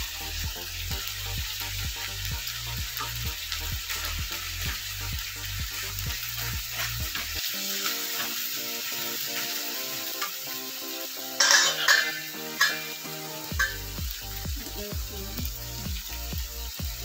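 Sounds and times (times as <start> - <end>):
food sizzling in oil: 0.0 - 17.0
soft background music: 0.0 - 17.0
wooden spatula scraping wok: 11.4 - 13.0.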